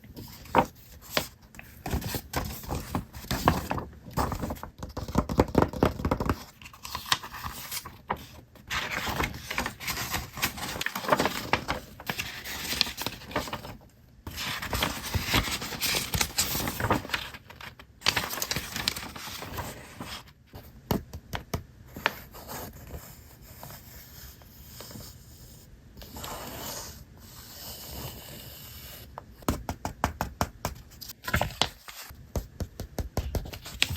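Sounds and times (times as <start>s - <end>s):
paper rustling and tearing: 6.6s - 20.2s.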